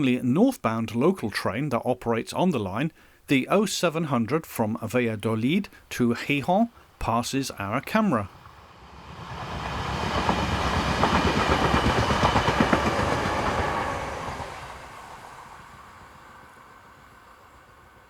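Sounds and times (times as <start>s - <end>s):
passenger train passing: 7.1s - 18.0s.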